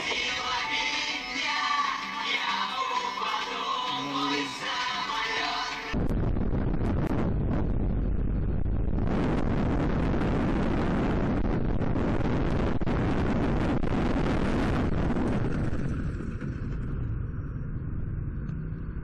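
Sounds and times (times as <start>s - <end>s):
crackles: 2.3s - 19.0s
vehicle road rumble: 3.8s - 19.0s.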